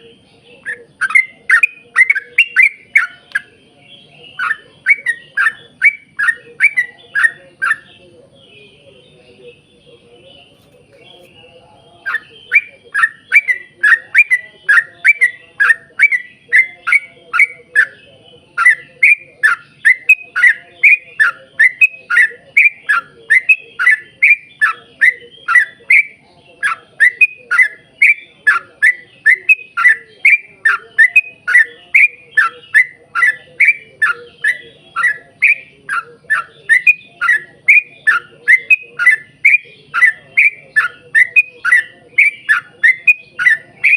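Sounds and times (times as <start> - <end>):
bird calling rapid notes: 18.6 - 43.9.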